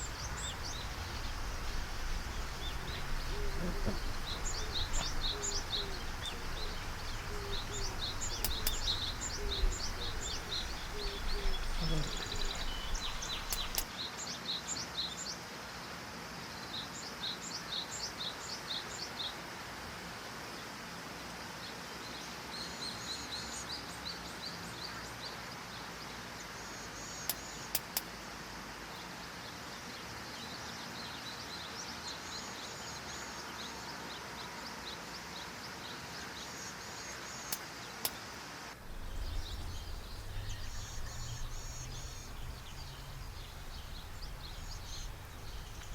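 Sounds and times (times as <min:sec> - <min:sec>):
sharp clicks: 0:00.0 - 0:13.9, 0:38.8 - 0:45.9
small birds chirping: 0:00.0 - 0:13.9, 0:38.8 - 0:45.9
steady outdoor hiss: 0:00.0 - 0:45.9
low rumble: 0:38.8 - 0:45.9.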